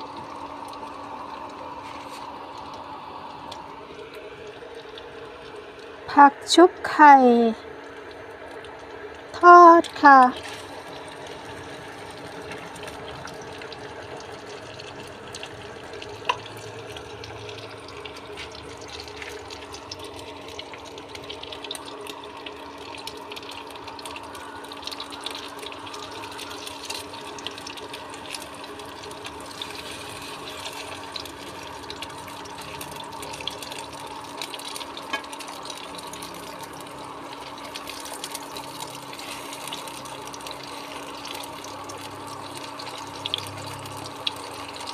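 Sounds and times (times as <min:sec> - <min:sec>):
vegetables sizzling in oil: 0:09.4 - 0:44.9.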